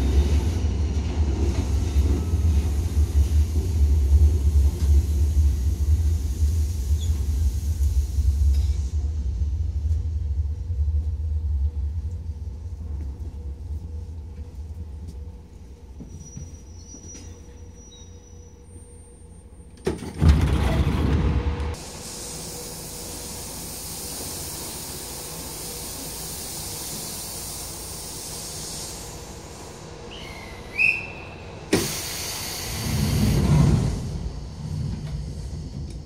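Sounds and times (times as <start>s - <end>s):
train doors sliding open: 0.0s - 9.0s, 19.6s - 36.0s
electric train rumble: 0.0s - 36.0s
steady air hiss: 21.8s - 30.8s, 31.7s - 36.0s.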